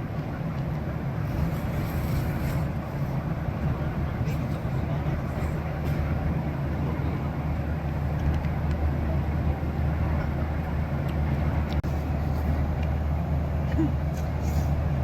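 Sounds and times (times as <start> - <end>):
jet cabin engine drone: 0.0 - 15.0.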